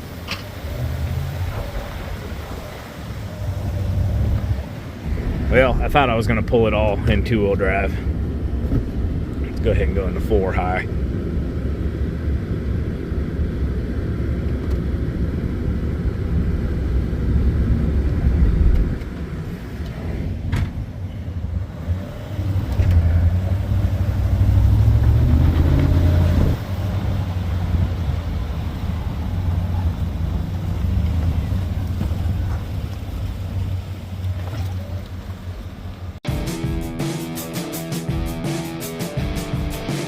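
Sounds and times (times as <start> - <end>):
truck engine under load: 0.0 - 9.7, 14.6 - 36.2.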